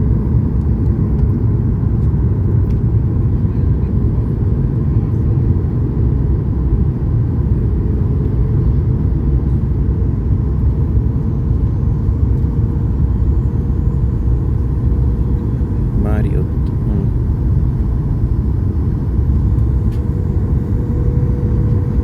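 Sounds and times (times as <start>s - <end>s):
jet engine cabin rumble: 0.0s - 22.0s.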